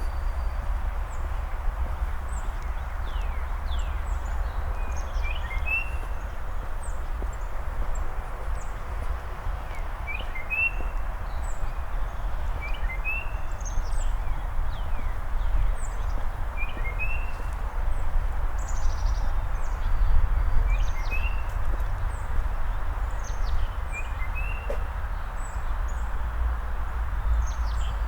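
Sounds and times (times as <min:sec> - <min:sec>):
songbirds singing: 0:00.0 - 0:26.2.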